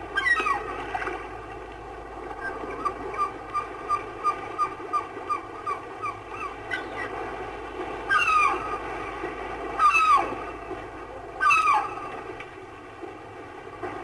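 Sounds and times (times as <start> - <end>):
waves washing: 0.0 - 14.0
seagulls calling: 0.1 - 1.2, 2.3 - 7.2, 8.0 - 9.2, 9.8 - 10.7, 11.4 - 12.3.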